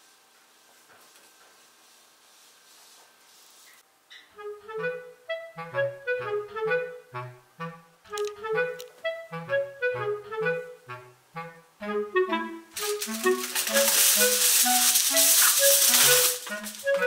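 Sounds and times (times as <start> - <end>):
loud steady hiss: 0.0 - 4.0, 12.6 - 17.0
bouncy woodwind melody: 4.4 - 17.0.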